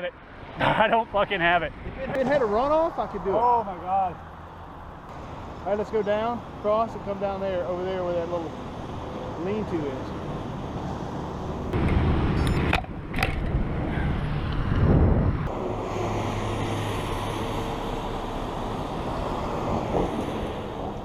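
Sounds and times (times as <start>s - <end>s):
wind buffeting microphone: 11.4s - 15.6s.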